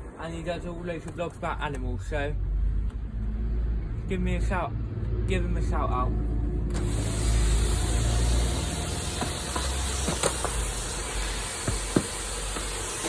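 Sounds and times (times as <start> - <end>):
vacuum cleaner running: 6.7 - 13.0
nozzle knocking on car interior: 9.2 - 10.6, 11.5 - 13.0.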